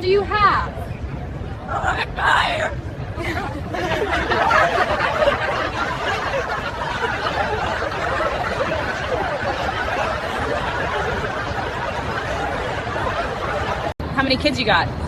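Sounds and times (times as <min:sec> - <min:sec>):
background chatter: 0:00.0 - 0:15.0
people laughing: 0:03.2 - 0:14.0.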